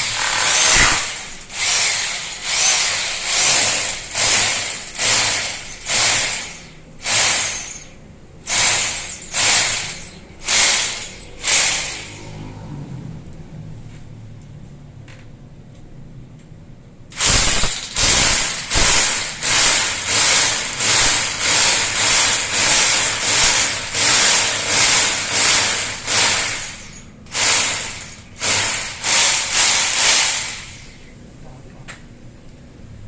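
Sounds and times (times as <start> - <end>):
hand saw cutting: 0.0 - 6.4.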